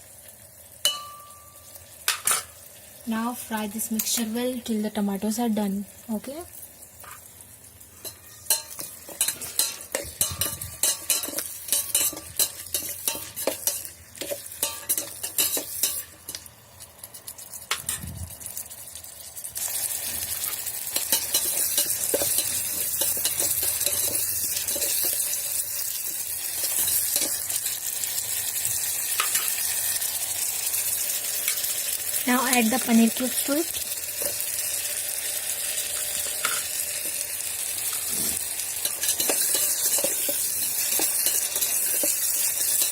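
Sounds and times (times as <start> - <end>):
oil sizzling: 0.0 - 42.9
spatula scraping a pan: 8.0 - 16.4, 20.1 - 25.5, 26.4 - 27.6, 37.8 - 42.9.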